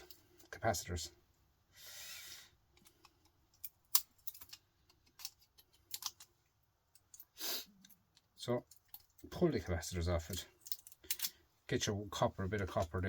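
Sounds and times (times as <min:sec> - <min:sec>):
pliers clicking and snapping: 0:02.8 - 0:06.3.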